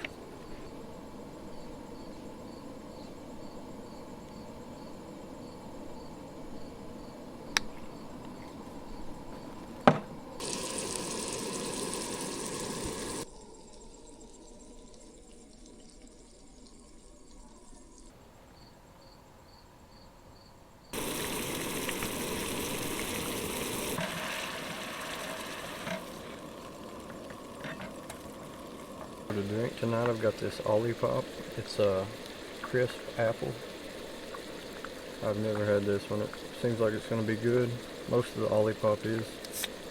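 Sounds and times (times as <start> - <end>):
insects chirping: 0.0 - 39.9
burgers sizzling in a pan: 10.4 - 13.3, 21.0 - 39.9.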